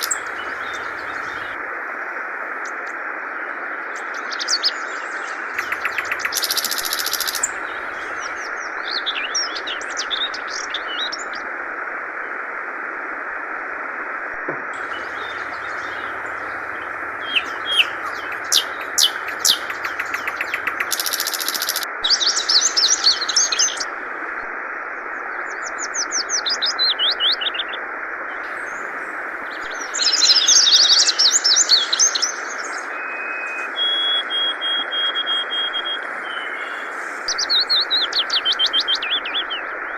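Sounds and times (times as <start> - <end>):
bird chirping and trilling: 0.0 - 1.6, 5.6 - 8.3, 14.8 - 23.9
flowing water: 0.0 - 4.2, 5.3 - 32.8.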